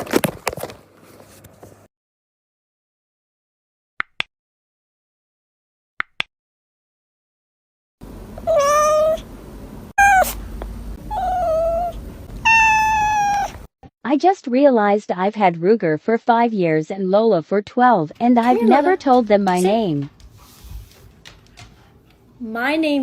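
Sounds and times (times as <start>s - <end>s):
cat meowing: 8.4s - 9.2s, 10.0s - 10.4s, 11.1s - 13.6s.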